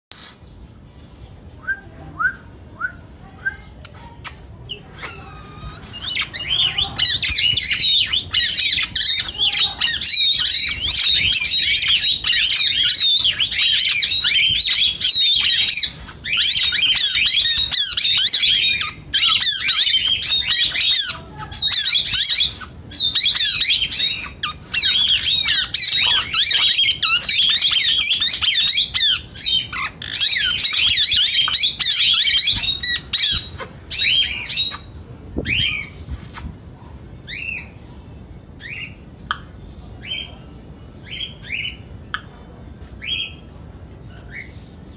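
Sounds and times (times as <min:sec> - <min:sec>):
parakeets chattering: 0:04.1 - 0:36.5.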